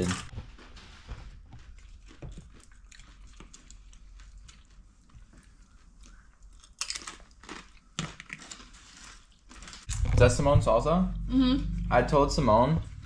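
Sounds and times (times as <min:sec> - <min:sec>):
person chewing: 0:01.5 - 0:10.2.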